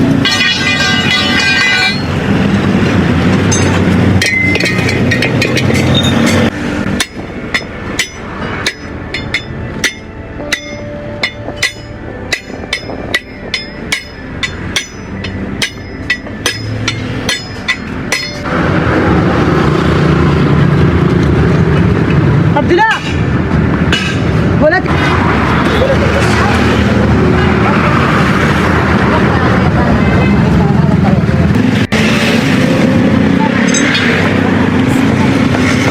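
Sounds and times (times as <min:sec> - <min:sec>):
road and vehicle noise: 0:00.0 - 0:35.9
hammer blows on metal: 0:03.5 - 0:18.5.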